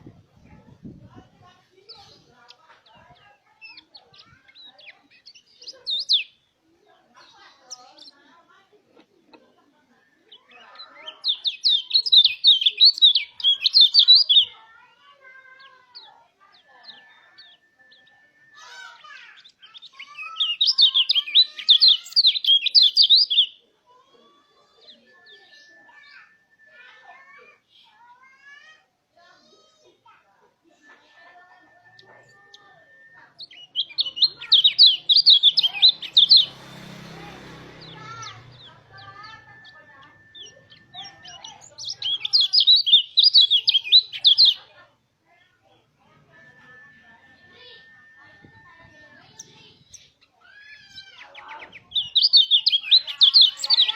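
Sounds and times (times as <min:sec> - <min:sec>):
faint bird chirps: 0:09.5 - 0:36.5, 0:37.8 - 0:53.9.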